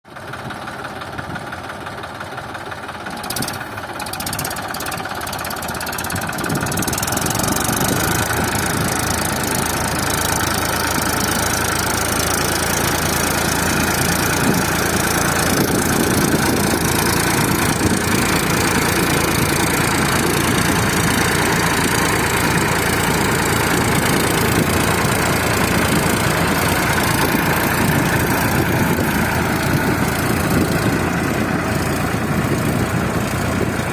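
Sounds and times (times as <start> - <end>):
tractor diesel engine running: 0.1 - 33.9.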